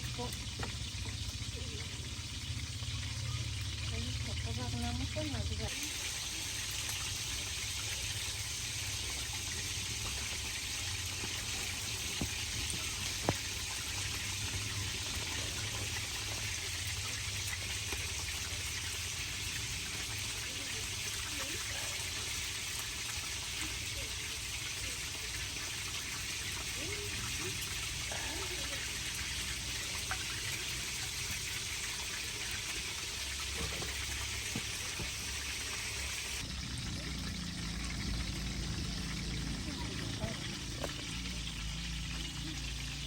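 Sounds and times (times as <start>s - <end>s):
heavy rain hissing: 5.2s - 18.6s, 19.4s - 22.3s, 26.4s - 31.6s, 32.2s - 43.0s.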